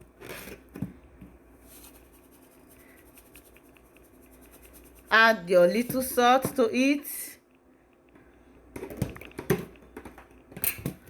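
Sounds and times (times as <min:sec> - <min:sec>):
kitchen rustling scrapes: 0:01.6 - 0:06.2.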